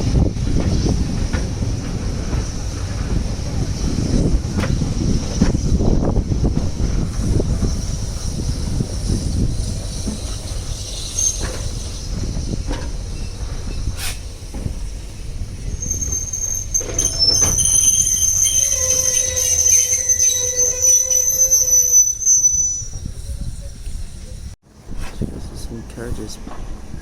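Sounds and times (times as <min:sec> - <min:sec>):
railway carriage rumble: 0:00.0 - 0:27.0
high metallic wheel squeal: 0:07.4 - 0:14.1, 0:15.6 - 0:24.5.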